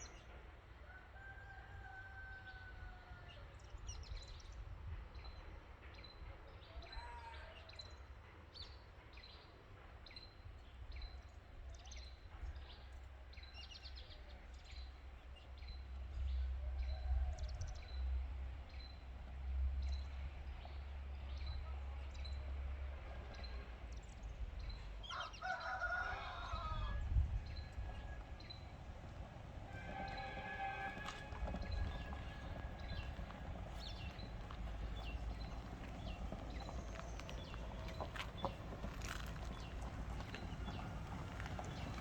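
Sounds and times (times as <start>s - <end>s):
steady low rumble: 30.5s - 42.0s.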